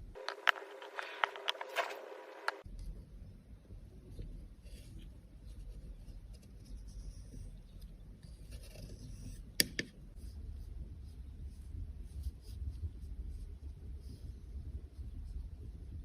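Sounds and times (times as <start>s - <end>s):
tool scratching and rubbing: 0.2s - 2.6s.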